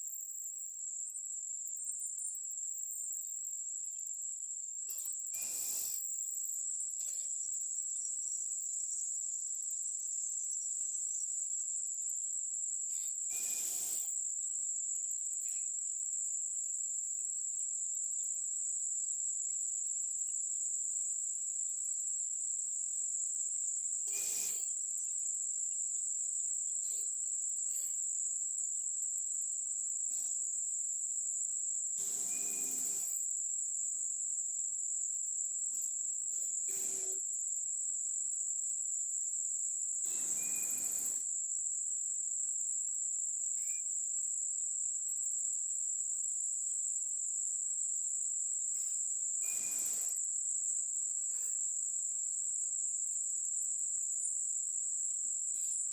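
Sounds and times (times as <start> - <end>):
insects trilling: 40.0 - 41.2, 49.4 - 51.2.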